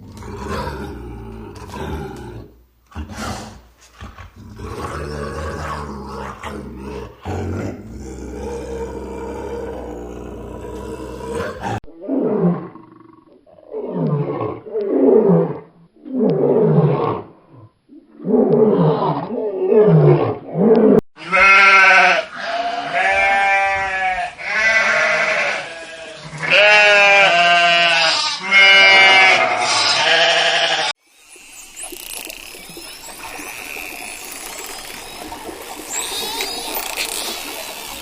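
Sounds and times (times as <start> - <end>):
wavering bleat-like cries: 21.2 - 31.0.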